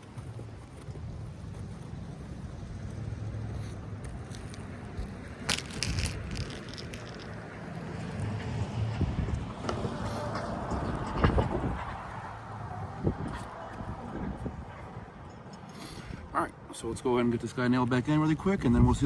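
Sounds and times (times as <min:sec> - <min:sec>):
metallic clinks: 0:05.4 - 0:07.4.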